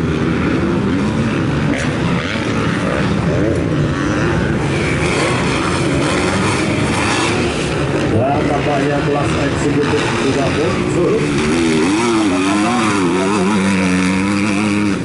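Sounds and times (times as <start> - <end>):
motocross bikes revving: 0.0 - 15.0.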